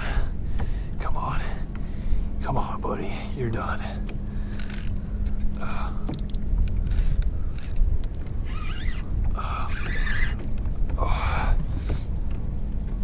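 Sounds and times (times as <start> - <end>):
steady low rumble: 0.0 - 13.0
fishing reel clicking and whirring: 4.4 - 10.4.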